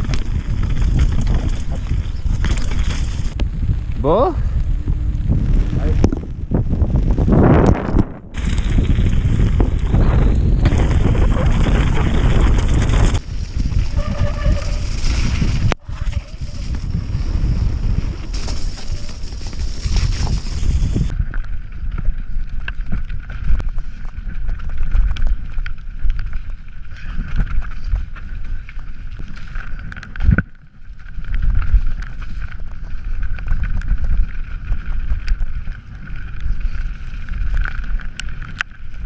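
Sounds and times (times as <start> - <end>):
wind on microphone: 0.0 - 30.5
bike rumbling over rough trail: 0.0 - 39.0.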